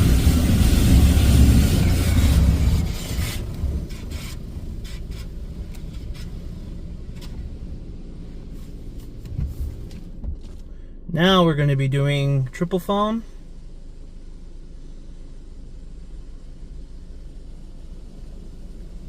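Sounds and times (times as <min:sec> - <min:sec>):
water spray on car body: 0:00.0 - 0:06.6
low steady rumble: 0:00.0 - 0:19.0.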